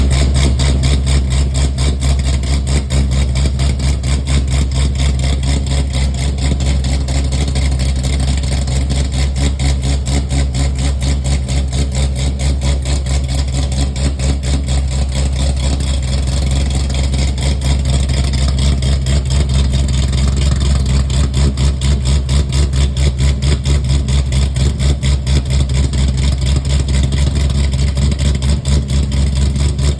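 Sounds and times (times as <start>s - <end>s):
car engine idling with choppy lope: 0.0s - 29.9s.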